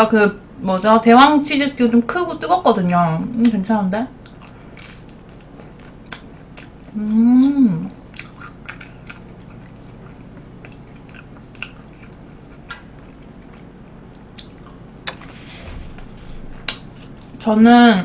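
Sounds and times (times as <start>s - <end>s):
person chewing food: 4.2s - 7.0s, 8.1s - 17.4s
short rustle: 15.2s - 17.2s.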